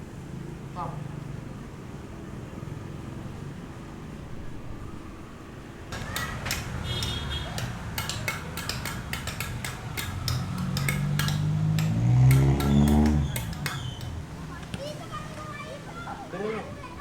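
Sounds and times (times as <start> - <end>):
metallic clinking and knocking: 5.9 - 14.4.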